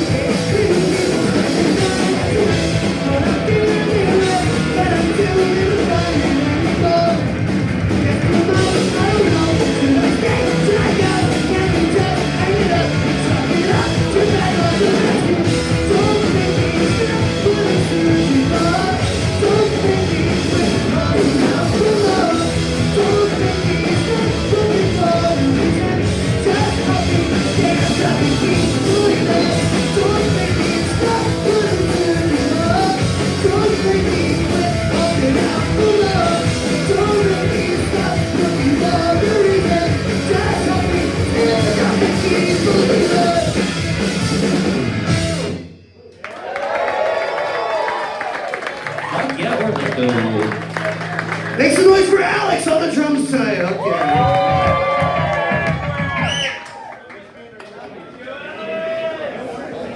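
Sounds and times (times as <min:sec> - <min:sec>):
person singing and shouting: 0:00.0 - 0:43.7
punk rock band playing: 0:00.0 - 0:45.8, 0:47.7 - 0:56.5.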